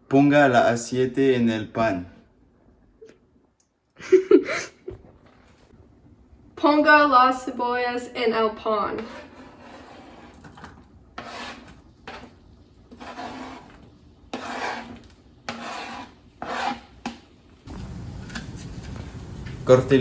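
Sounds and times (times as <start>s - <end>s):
low steady hum: 0.0s - 9.4s
utensil scraping in a pan: 8.6s - 17.6s.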